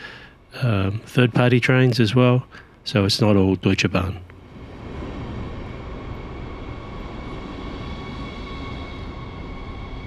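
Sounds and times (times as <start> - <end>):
train rumble: 0.0 - 10.0
high whining tones: 4.1 - 10.0.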